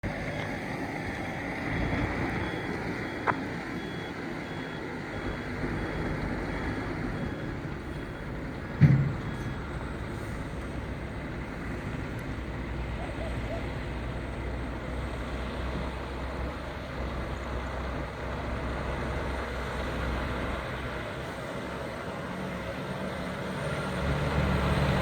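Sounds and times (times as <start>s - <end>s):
truck diesel engine running: 0.0s - 25.0s
heavy thump: 8.7s - 9.5s
faint high beeps: 9.0s - 10.0s.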